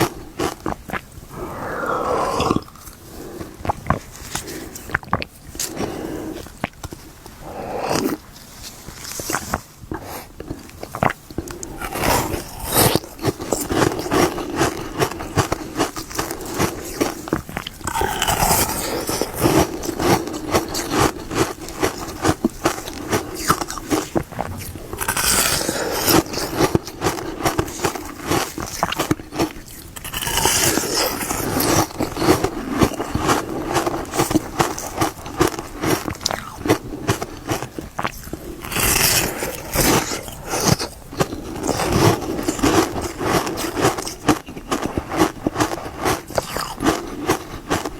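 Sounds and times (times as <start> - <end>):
ice pop crunching: 10.9 - 29.2.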